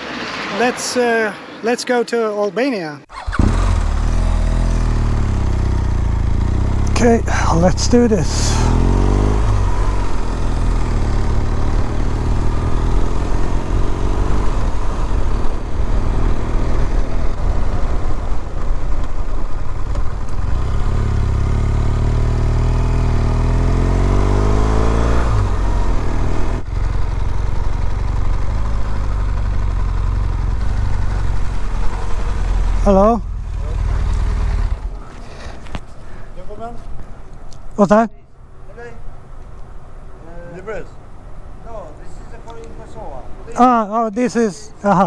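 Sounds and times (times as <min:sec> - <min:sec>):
motorcycle engine accelerating: 0:03.1 - 0:35.9.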